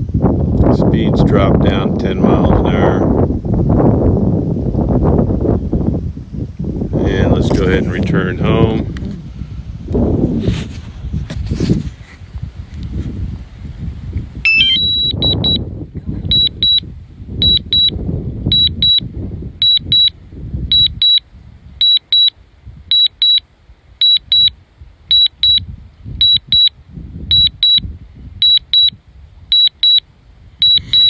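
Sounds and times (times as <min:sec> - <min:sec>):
wind buffeting microphone: 0:00.0 - 0:31.0
rising alert tone: 0:14.5 - 0:15.1
remote controller high beeps: 0:14.5 - 0:15.6, 0:16.3 - 0:16.8, 0:17.4 - 0:17.9, 0:18.5 - 0:19.0, 0:19.6 - 0:20.1, 0:20.7 - 0:21.2, 0:21.8 - 0:22.3, 0:22.9 - 0:23.4, 0:24.0 - 0:24.5, 0:25.1 - 0:25.6, 0:26.2 - 0:26.7, 0:27.3 - 0:27.8, 0:28.4 - 0:28.9, 0:29.5 - 0:30.0, 0:30.6 - 0:31.0.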